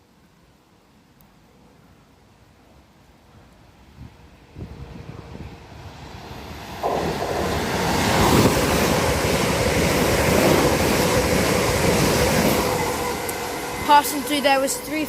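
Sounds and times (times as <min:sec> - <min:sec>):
train wheels rushing on rail: 0:03.3 - 0:15.0.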